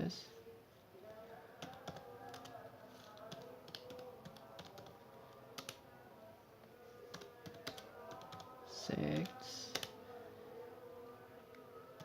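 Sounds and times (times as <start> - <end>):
keyboard typing: 1.6 - 5.8, 7.1 - 8.5, 9.1 - 10.0.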